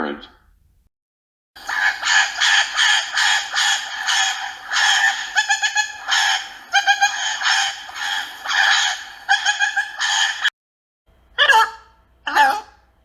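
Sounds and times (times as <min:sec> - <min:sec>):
parrot squawking: 0:01.6 - 0:10.5, 0:11.4 - 0:12.8.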